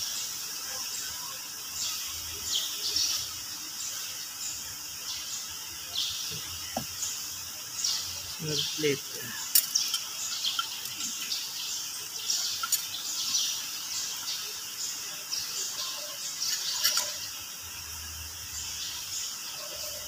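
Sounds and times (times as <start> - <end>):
small birds chirping: 0.0 - 20.0
metal bolts clicking: 16.5 - 17.2.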